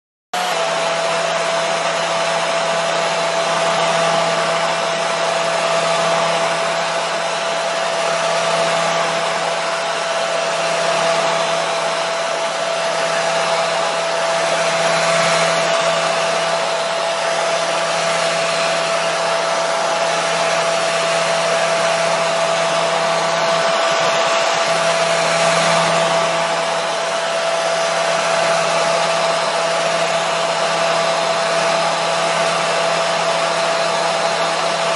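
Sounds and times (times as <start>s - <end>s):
hair dryer running: 0.4s - 34.9s.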